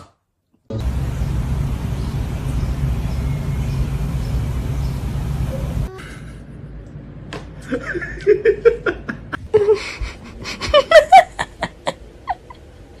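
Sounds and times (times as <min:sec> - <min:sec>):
person laughing: 0:05.9 - 0:06.5, 0:07.6 - 0:12.6.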